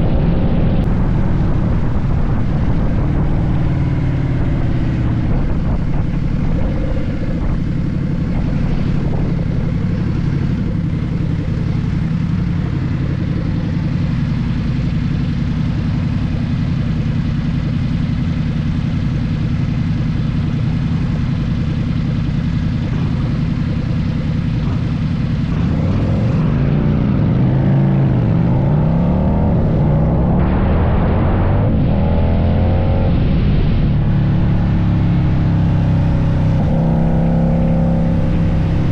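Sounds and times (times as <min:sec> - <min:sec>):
wind rush: 0:00.0 - 0:14.2, 0:25.4 - 0:38.9
motorcycle engine running: 0:00.0 - 0:38.9.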